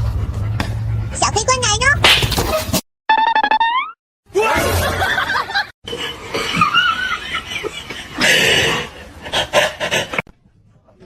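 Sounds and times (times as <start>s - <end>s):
people laughing: 4.6s - 10.2s.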